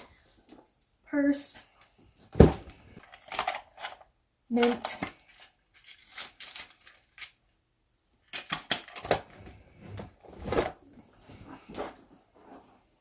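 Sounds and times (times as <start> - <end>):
small objects clicking and knocking: 3.0 - 7.4.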